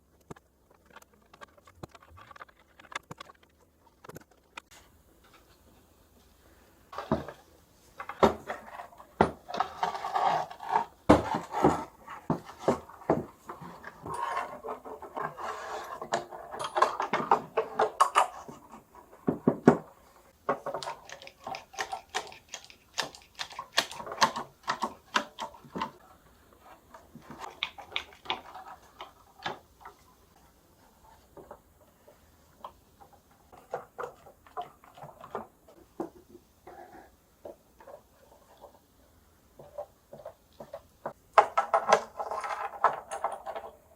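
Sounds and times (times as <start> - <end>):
clicks knocks and scraping on wood: 8.0 - 26.0.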